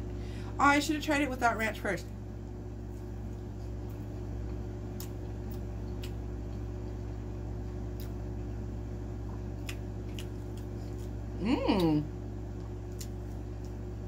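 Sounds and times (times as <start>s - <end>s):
low hum: 0.0s - 14.0s
person chewing: 2.8s - 8.4s, 9.1s - 14.0s.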